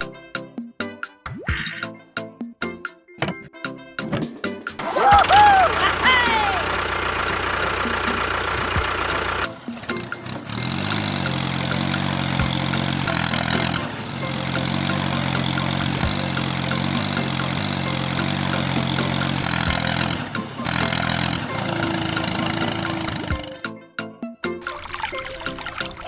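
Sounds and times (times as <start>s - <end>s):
engine running: 4.8s - 23.6s.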